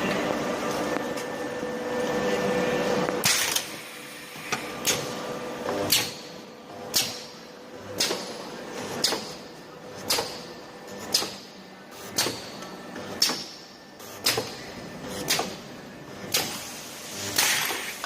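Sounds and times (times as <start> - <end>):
welding machine hum: 0.0 - 18.0
welding machine clacking: 12.1 - 12.5.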